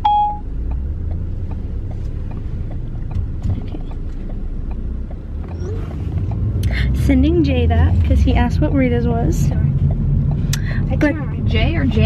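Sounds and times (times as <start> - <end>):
car driving from inside cabin: 0.0 - 12.0.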